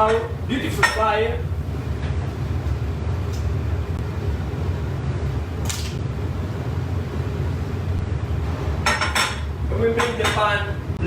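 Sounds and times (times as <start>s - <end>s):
kitchen equipment rumbling: 8.6s - 10.7s.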